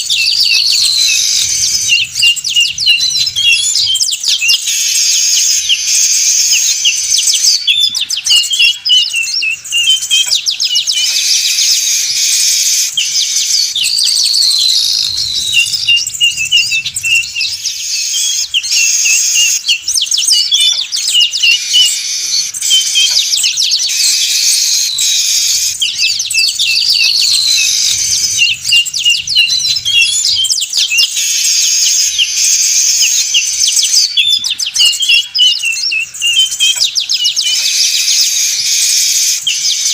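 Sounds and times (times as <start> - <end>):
flock of birds chattering: 0.0 - 39.9
falling whistle: 11.2 - 36.8.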